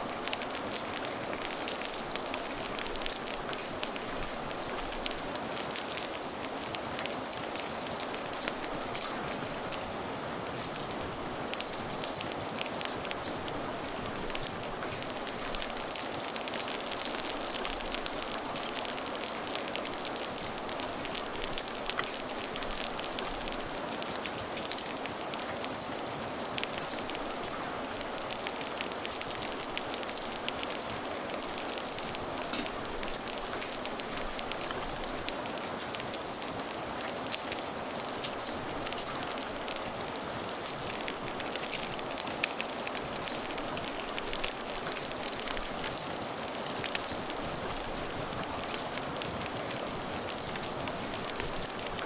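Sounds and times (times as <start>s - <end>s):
steady rain falling: 0.0s - 52.0s
wood fire crackling: 0.0s - 52.0s.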